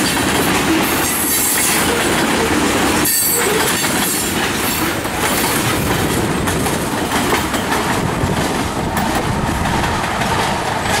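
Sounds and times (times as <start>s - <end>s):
freight train wheels rumbling: 0.0s - 11.0s
wheels clacking over rail joints: 0.0s - 11.0s.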